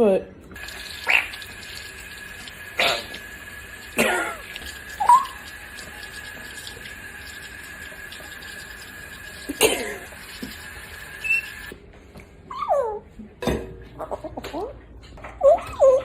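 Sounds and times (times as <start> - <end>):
parrot squawk: 1.0 - 1.4
parrot high chirp: 11.2 - 11.6.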